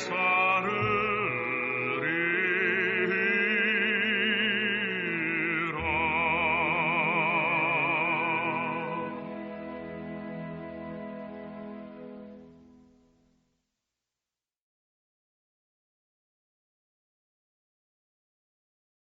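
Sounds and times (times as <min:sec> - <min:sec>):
person singing with vibrato: 0:00.0 - 0:10.2
sustained accompaniment: 0:00.0 - 0:13.0.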